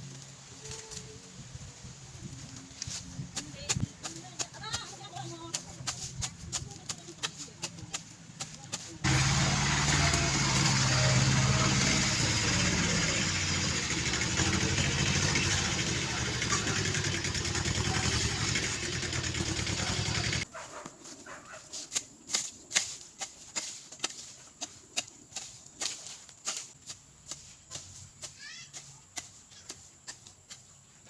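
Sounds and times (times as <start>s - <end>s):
engine running: 9.0s - 20.5s.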